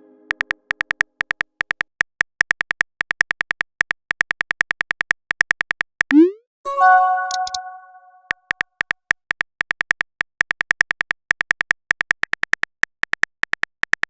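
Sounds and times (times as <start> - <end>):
typing sound effect beeps: 6.1 - 8.4
notification chime: 6.2 - 8.3.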